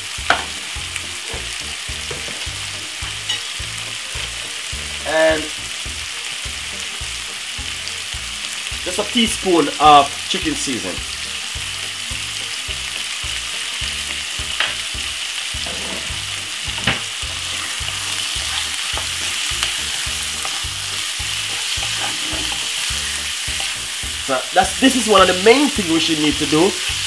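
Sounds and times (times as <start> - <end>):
food sizzling in hot oil: 0.0 - 27.0
wooden spoon stirring: 17.4 - 20.7, 21.4 - 24.2.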